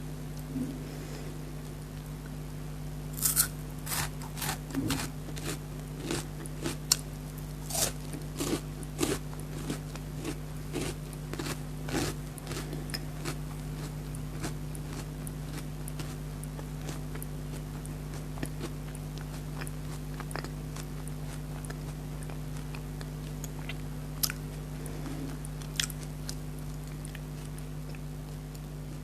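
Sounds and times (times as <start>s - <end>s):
low electrical hum: 0.0s - 29.0s
crunching and chewing chocolate wafer: 3.2s - 29.0s.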